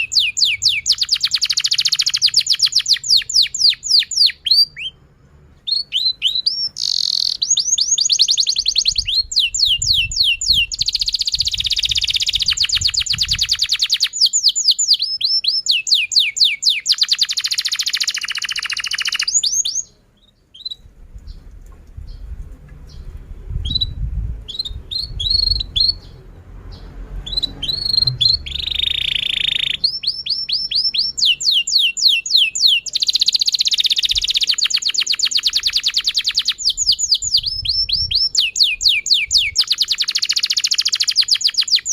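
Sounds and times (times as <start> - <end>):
canary singing: 0.0 - 41.9.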